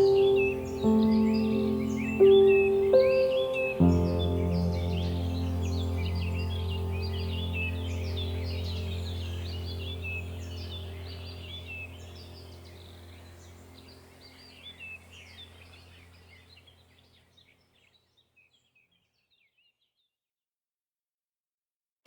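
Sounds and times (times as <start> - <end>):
ambient music drone: 0.0 - 17.4
birds chirping and singing: 0.0 - 20.1.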